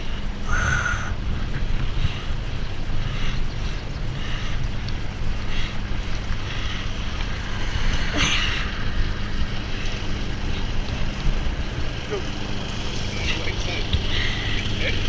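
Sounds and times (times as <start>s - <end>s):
wind buffeting camera: 0.0s - 15.0s.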